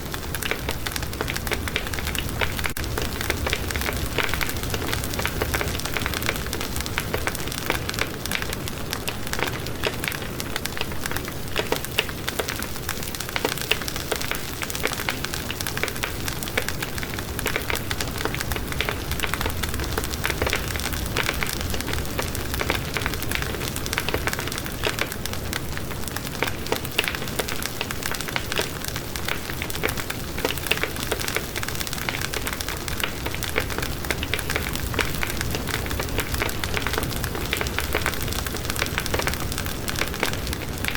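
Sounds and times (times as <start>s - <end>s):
fire crackling and popping: 0.0s - 40.9s.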